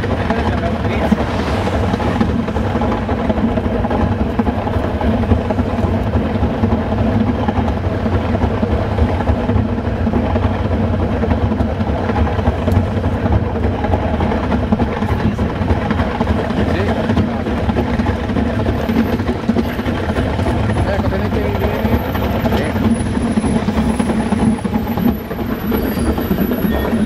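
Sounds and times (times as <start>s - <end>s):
train rumbling on track: 0.0s - 27.0s.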